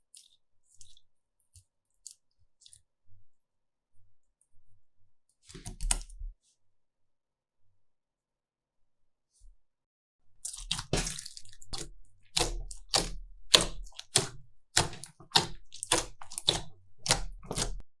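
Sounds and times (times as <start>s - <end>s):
slime squelching and popping: 10.4s - 17.8s.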